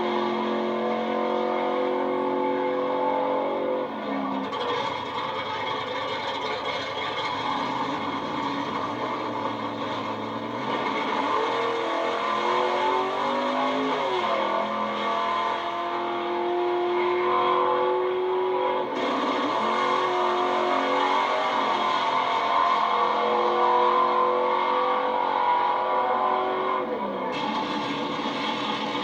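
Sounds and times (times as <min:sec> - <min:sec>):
racing engine shifting gears: 0:00.0 - 0:29.0.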